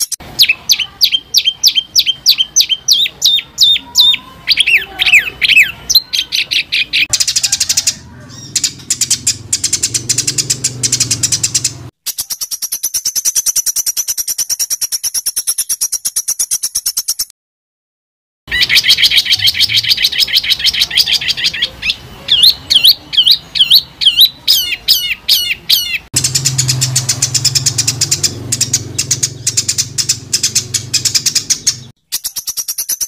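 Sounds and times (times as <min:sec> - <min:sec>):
recorded songbird calls: 0:00.0 - 0:17.3, 0:18.5 - 0:33.0
rapid high chattering: 0:00.1 - 0:11.9, 0:26.2 - 0:31.9.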